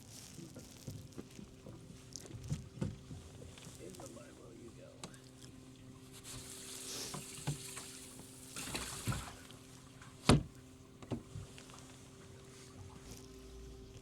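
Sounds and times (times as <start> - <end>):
steady low hum: 0.1 - 14.0
knocks against a boat: 0.9 - 3.6, 10.2 - 11.6
water splashing: 6.4 - 9.8.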